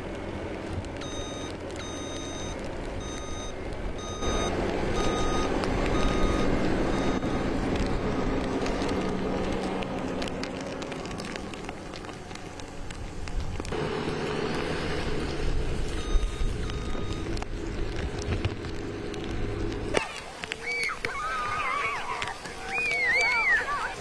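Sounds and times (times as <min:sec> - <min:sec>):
engine running: 0:00.0 - 0:20.6
reversing alarm beeping: 0:01.0 - 0:07.4, 0:16.0 - 0:17.3.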